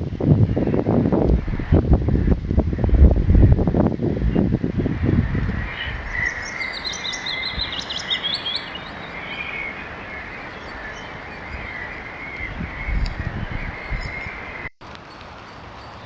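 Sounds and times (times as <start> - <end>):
bird song of repeated notes: 0.0 - 16.0
soft bird chirps: 5.6 - 16.0.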